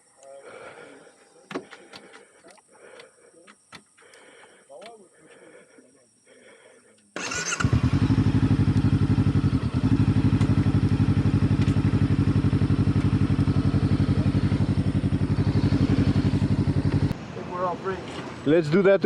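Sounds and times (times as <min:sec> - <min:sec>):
motorcycle engine running: 0:07.2 - 0:17.2.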